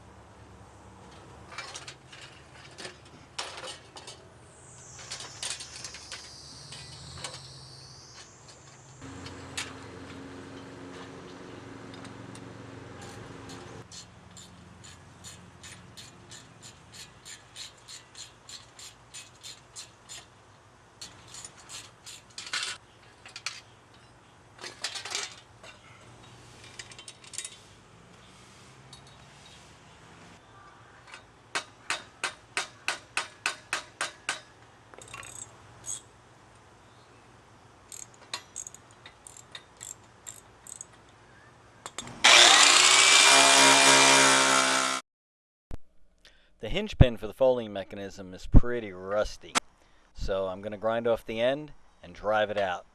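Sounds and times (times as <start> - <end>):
power tool whining: 42.0 - 45.0.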